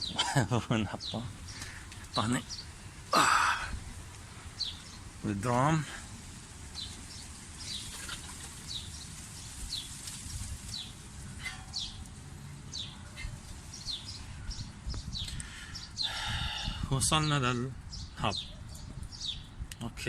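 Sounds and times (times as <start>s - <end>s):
bird chirping: 0.0s - 2.9s, 4.4s - 5.7s, 6.7s - 19.8s.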